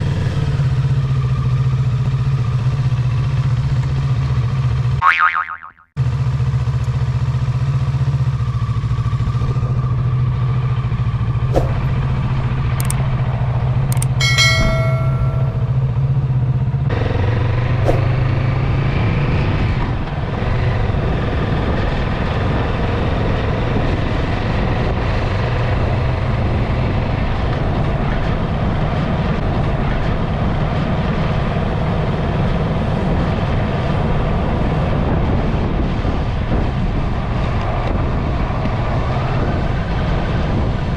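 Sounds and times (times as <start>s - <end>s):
motorcycle engine running: 0.0s - 28.6s.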